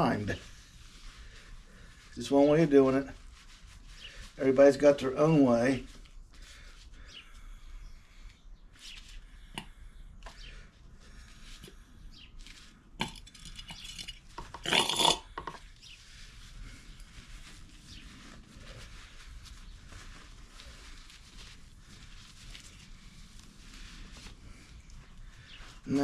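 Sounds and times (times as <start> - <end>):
metal tools clinking and rattling: 13.0 - 15.6.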